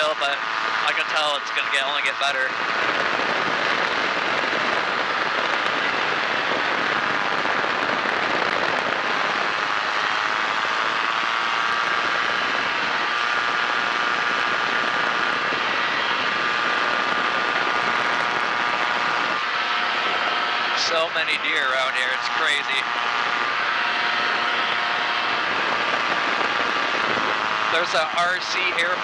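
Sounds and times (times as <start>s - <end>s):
light airplane engine droning: 0.0s - 29.0s.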